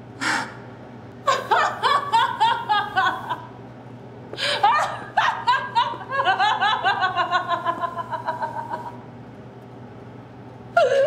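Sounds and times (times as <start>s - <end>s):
low steady hum: 0.0s - 11.0s
woman laughing: 1.3s - 3.5s, 4.4s - 9.0s.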